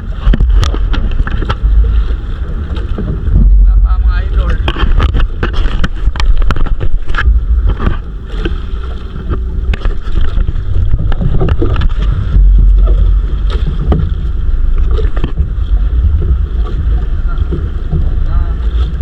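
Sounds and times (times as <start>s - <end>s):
knocks and clatter on boat: 0.0s - 19.0s
wind buffeting microphone: 0.0s - 19.0s.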